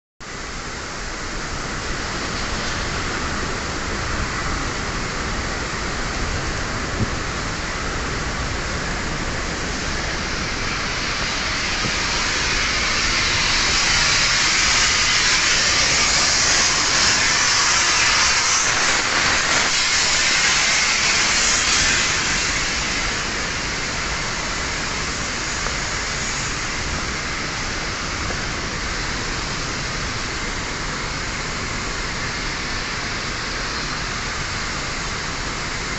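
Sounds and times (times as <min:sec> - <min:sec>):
blast furnace rushing hiss: 0:00.2 - 0:35.9.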